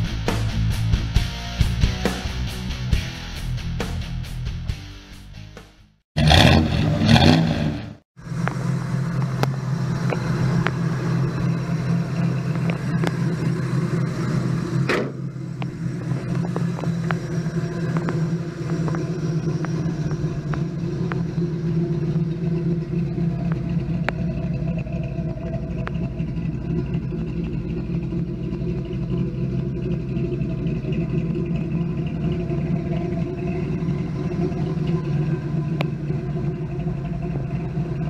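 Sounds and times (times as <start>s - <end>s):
rock music: 0.0s - 6.0s
car engine idling: 6.2s - 38.0s.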